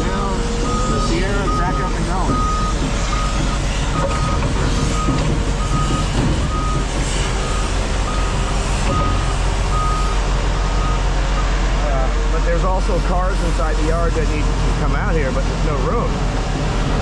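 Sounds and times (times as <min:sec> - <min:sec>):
heavy machinery rumble: 0:00.0 - 0:17.0
backup alarm beeping: 0:00.2 - 0:11.5.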